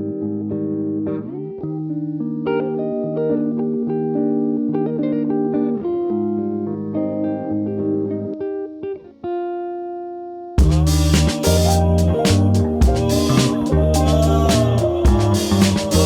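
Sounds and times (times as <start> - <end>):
plucked guitar notes and chords: 0.0 - 9.8.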